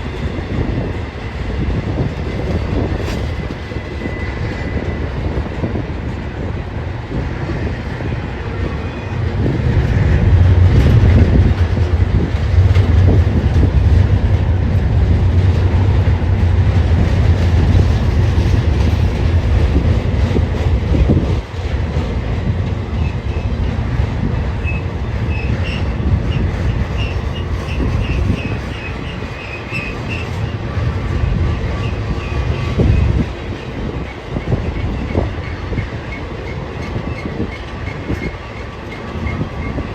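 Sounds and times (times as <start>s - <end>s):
train rumbling: 0.0s - 39.9s
wheel squeals: 24.6s - 30.5s.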